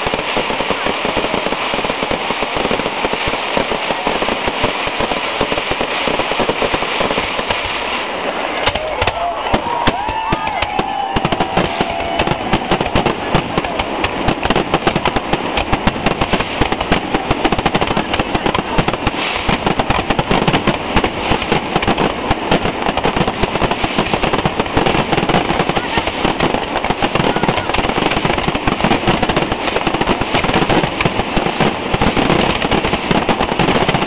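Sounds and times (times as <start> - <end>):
fireworks bangs and crackling: 0.0 - 34.0.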